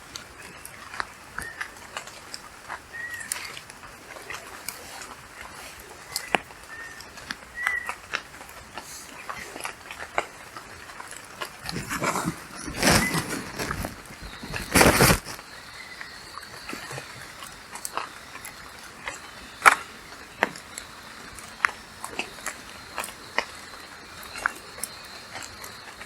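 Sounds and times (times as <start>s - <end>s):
birds whistling: 0.4s - 2.0s, 2.8s - 8.1s, 11.6s - 26.0s
loud rustling: 8.0s - 15.5s.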